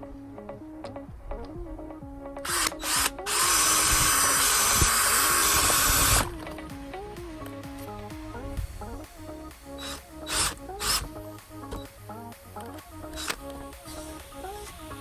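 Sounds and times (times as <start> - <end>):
background music: 0.0 - 15.0
cordless drill spinning: 2.4 - 6.7, 9.8 - 11.2, 12.6 - 15.0.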